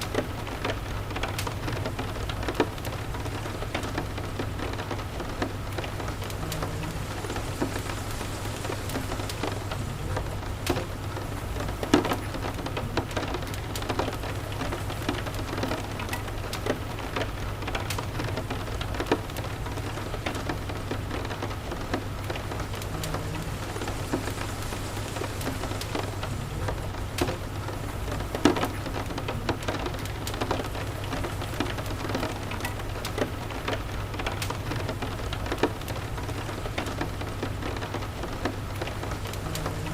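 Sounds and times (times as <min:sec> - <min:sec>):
steady rain: 0:00.0 - 0:39.9
wood fire crackling: 0:00.0 - 0:39.9.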